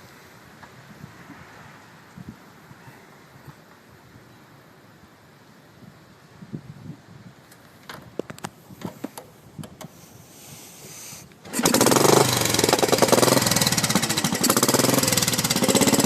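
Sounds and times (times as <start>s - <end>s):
motorcycle engine running: 11.5s - 16.0s.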